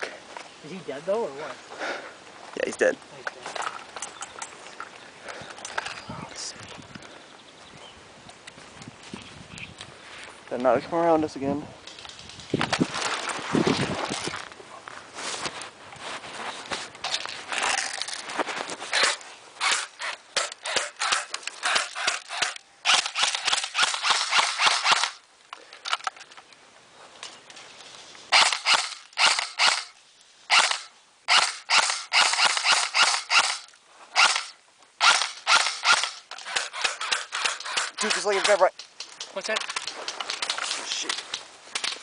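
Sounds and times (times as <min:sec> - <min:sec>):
airsoft guns firing: 0:19.0 - 0:25.2, 0:28.3 - 0:29.9, 0:30.5 - 0:38.7.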